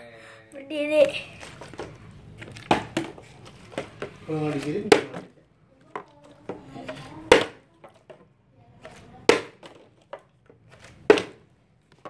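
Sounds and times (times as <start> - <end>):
plastic bottle landing on surface: 2.6 - 3.2, 3.8 - 5.3, 11.0 - 11.4.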